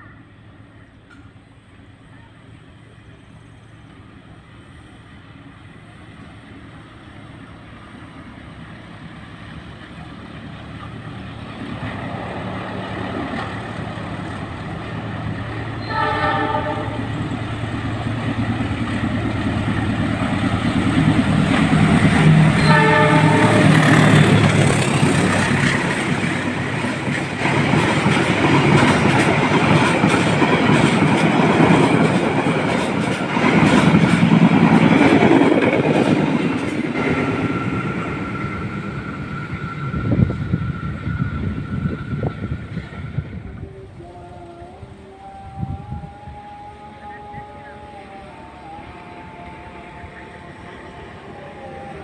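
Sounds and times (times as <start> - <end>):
diesel locomotive engine drone: 0.0 - 52.0
train wheels rumbling on rails: 0.0 - 52.0
train horn blasts: 15.8 - 17.3, 22.3 - 24.7.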